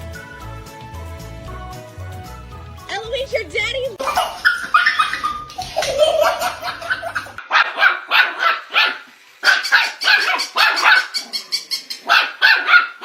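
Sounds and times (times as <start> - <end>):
dog barking: 4.0 - 5.4, 6.1 - 11.4, 12.0 - 13.0.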